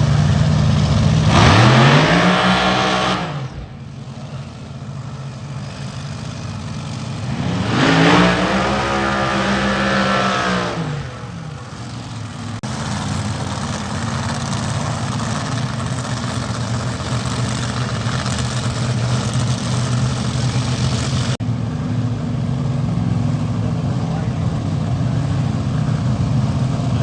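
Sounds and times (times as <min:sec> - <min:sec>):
car engine revving: 0:00.0 - 0:21.4
low engine rumble: 0:02.5 - 0:27.0.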